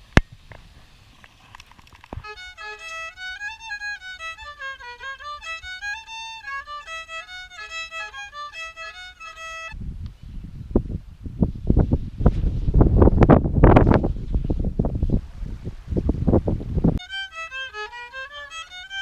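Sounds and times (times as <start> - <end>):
solo fiddle melody: 2.1 - 9.8, 16.9 - 19.0
wind rumble on microphone: 9.7 - 17.1.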